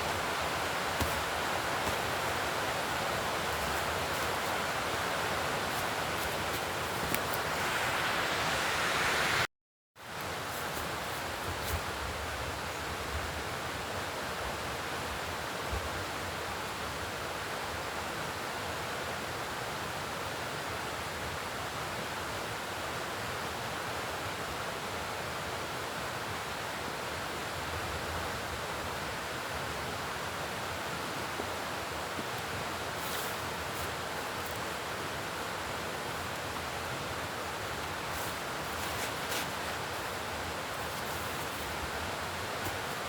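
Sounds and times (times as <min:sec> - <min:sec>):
steady outdoor rushing noise: 0:00.0 - 0:09.5, 0:31.9 - 0:43.0.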